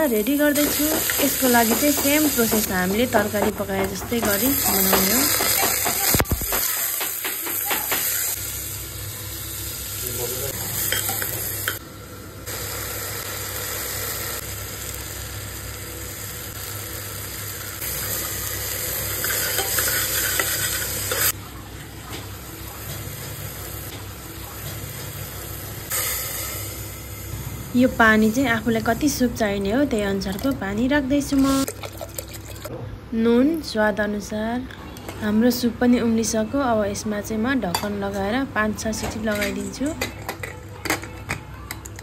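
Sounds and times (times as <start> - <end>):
meat and onions sizzling: 0.0 - 11.8, 12.4 - 21.4, 22.2 - 29.6
water pouring: 31.7 - 32.7.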